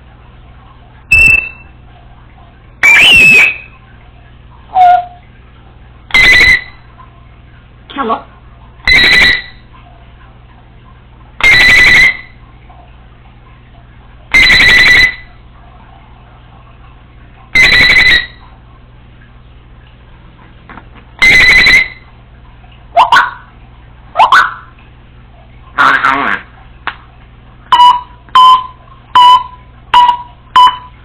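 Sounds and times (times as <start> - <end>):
parrot mimicking alarm beeps: 1.1 - 1.7, 2.8 - 3.7, 4.7 - 5.2, 6.1 - 6.9, 8.8 - 9.6, 11.4 - 12.4, 14.3 - 15.3, 17.6 - 18.4, 21.2 - 22.1, 23.0 - 23.5, 24.2 - 24.7, 27.7 - 31.0
parrot sliding whistles: 1.1 - 1.7, 2.8 - 3.7, 6.1 - 6.8.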